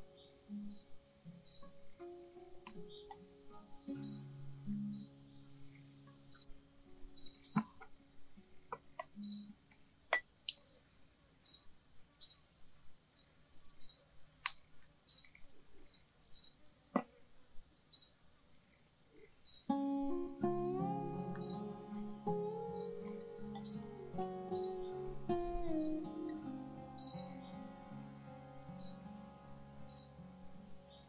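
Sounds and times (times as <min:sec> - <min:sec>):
small bird chirping: 0:00.0 - 0:01.8, 0:02.4 - 0:06.5, 0:07.2 - 0:17.0, 0:17.8 - 0:18.2, 0:19.2 - 0:19.8, 0:21.1 - 0:27.7, 0:28.6 - 0:31.0.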